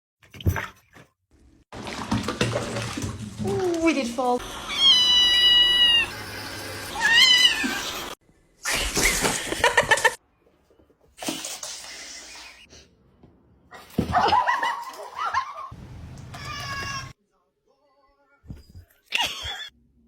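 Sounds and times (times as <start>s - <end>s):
cats meowing: 4.4s - 6.2s, 6.9s - 8.2s, 16.4s - 17.1s.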